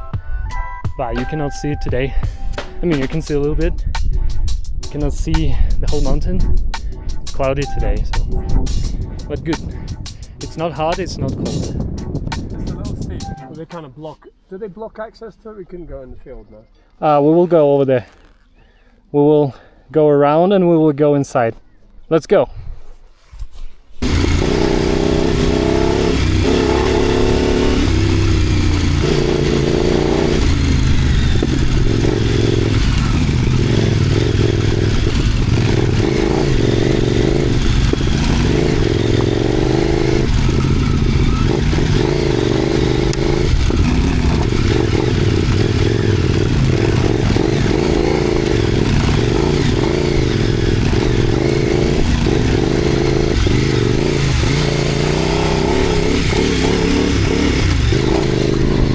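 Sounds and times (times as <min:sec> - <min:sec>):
steady rushing noise: 0:01.8 - 0:13.8, 0:24.0 - 0:58.9
motorcycle engine revving: 0:02.1 - 0:13.7, 0:24.0 - 0:58.9.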